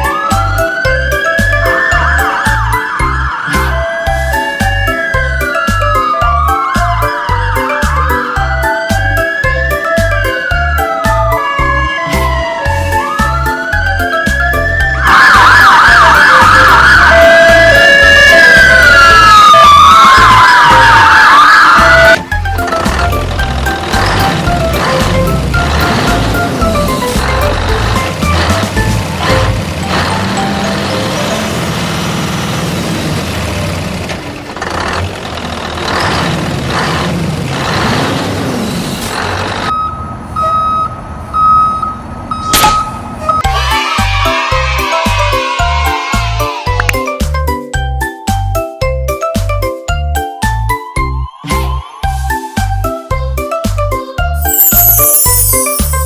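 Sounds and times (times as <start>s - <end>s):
background music with steady beat: 0.0s - 20.4s, 43.3s - 56.0s
electronic siren wailing and yelping: 0.0s - 22.2s
reversing alarm beeping: 0.0s - 22.2s, 39.7s - 43.6s, 54.3s - 56.0s
rumbling vehicle: 21.8s - 43.5s.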